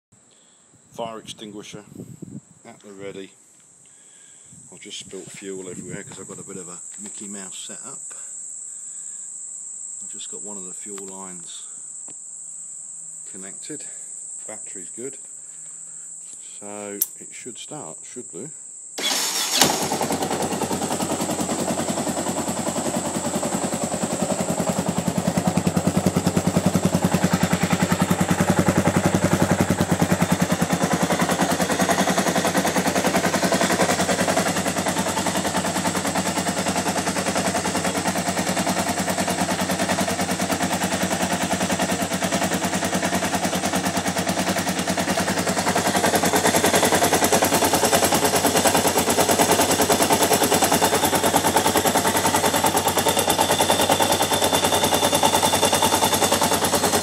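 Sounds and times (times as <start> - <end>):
motorcycle engine running: 19.0 - 57.0.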